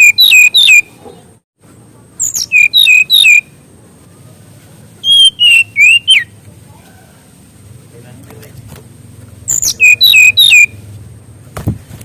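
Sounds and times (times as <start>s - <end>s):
bird whistling song: 0.0s - 1.0s, 2.2s - 3.6s, 5.0s - 6.4s, 9.5s - 10.8s.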